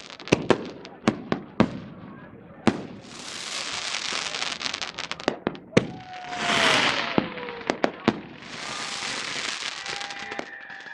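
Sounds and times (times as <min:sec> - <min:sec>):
crackling hiss: 0:00.0 - 0:01.0, 0:02.8 - 0:10.9
firecracker bangs: 0:02.7 - 0:10.9
firework hissing rush and whistle: 0:06.0 - 0:10.9.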